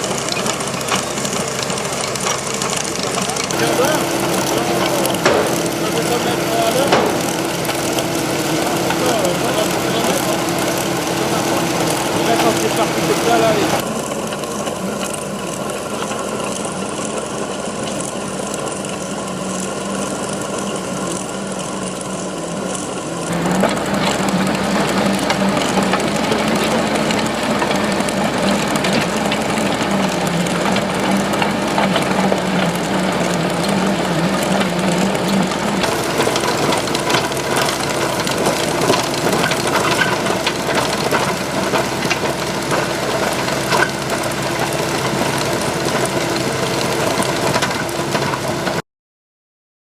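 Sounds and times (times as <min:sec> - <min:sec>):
chain trencher rattling: 0:00.0 - 0:13.8, 0:23.4 - 0:48.8
excavator engine running: 0:00.0 - 0:48.8.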